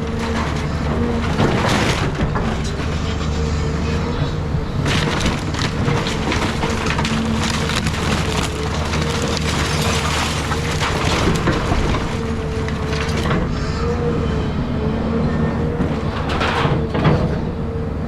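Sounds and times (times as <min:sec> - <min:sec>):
excavator engine drone and whine: 0:00.0 - 0:18.0
timber cracking and crunching: 0:04.8 - 0:13.5.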